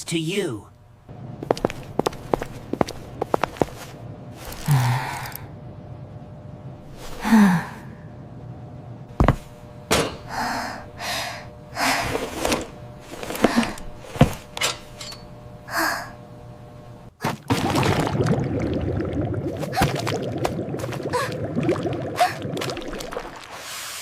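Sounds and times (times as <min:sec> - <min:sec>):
breathy gasps and sighs: 0:04.5 - 0:05.5.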